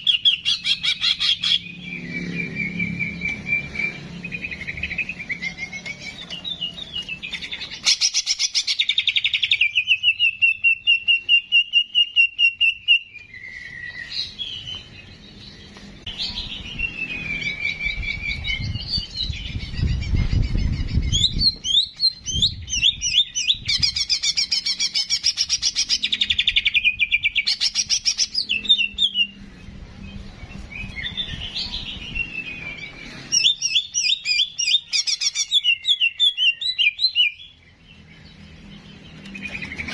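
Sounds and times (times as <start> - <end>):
songbird chattering trills and whistles: 30.1 - 37.8.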